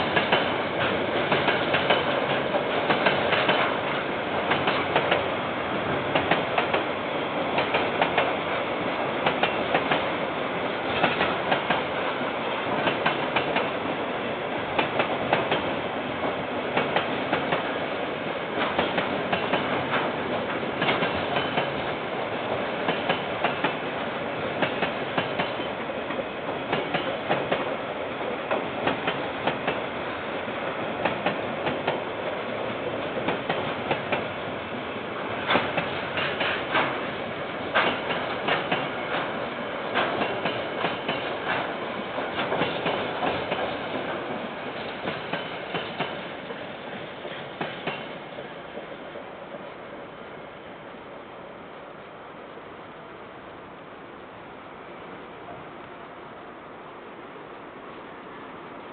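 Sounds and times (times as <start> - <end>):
wheels clicking on rail joints: 0.0 - 8.6, 10.9 - 13.8, 18.6 - 24.0, 24.6 - 29.9, 35.3 - 48.5
freight train wagons rolling: 0.0 - 14.0, 14.6 - 49.8.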